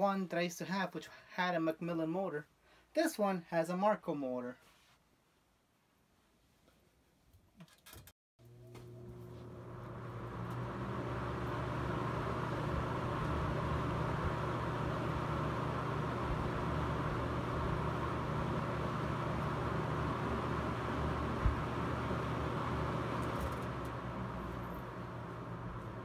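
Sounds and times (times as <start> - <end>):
box fan motor hum: 8.4 - 26.0.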